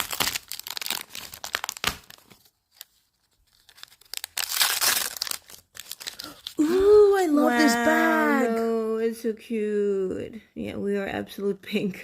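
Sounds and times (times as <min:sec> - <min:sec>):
plastic packaging crinkling and tearing: 0:00.0 - 0:07.1.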